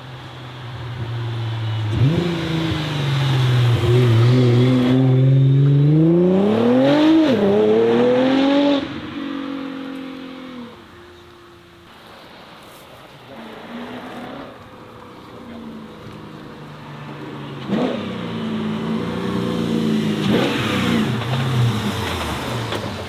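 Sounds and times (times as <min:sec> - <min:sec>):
car engine accelerating hard: 0:01.7 - 0:10.7, 0:17.5 - 0:23.0.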